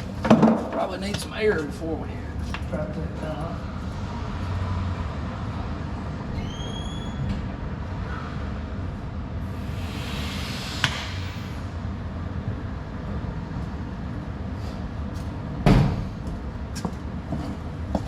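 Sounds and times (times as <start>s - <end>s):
low rumble: 7.2s - 14.5s
short hiss: 9.6s - 11.8s.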